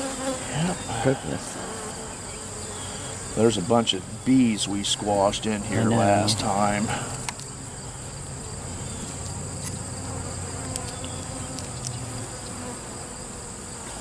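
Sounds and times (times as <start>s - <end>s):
honey bees buzzing: 0.0s - 14.0s
faint ticks: 10.6s - 12.6s.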